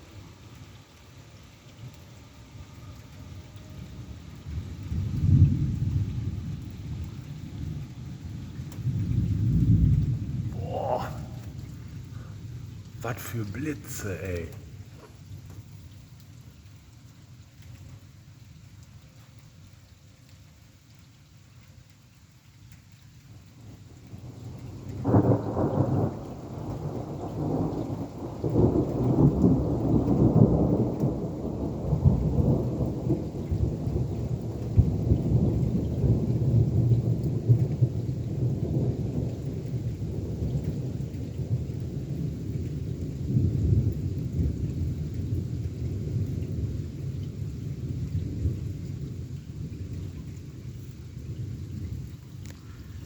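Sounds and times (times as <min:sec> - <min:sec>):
rolling thunder rumble: 0:04.5 - 0:15.0, 0:23.6 - 0:53.0.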